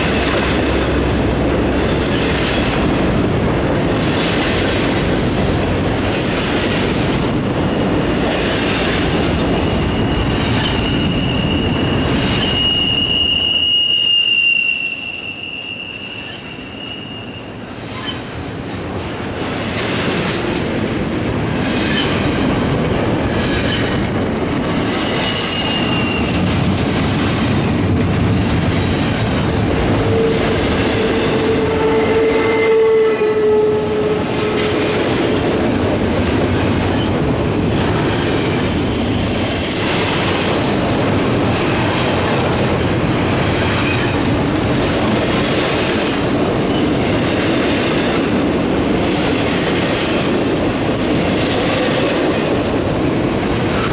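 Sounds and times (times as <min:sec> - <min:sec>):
freight train wheels rumbling: 0:00.0 - 0:53.9
wheel squeals: 0:09.6 - 0:18.3, 0:23.2 - 0:26.9, 0:28.3 - 0:40.6.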